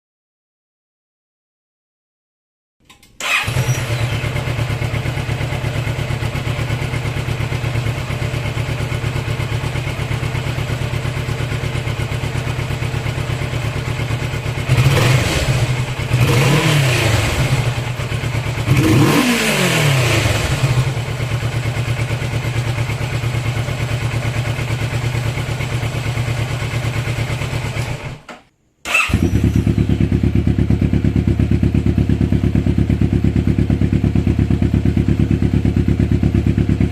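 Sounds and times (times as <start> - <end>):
motorcycle engine idling and revving: 3.2 - 36.9.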